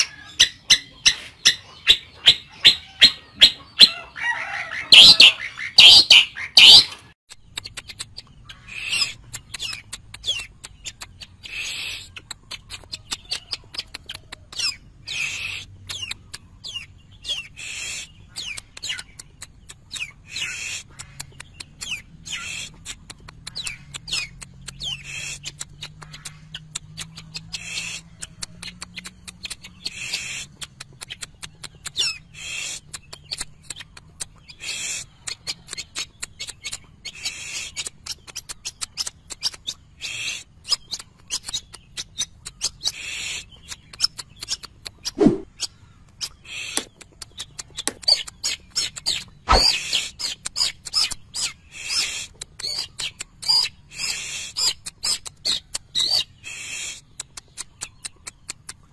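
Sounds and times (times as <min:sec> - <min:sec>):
shrike singing: 0:00.0 - 0:07.0.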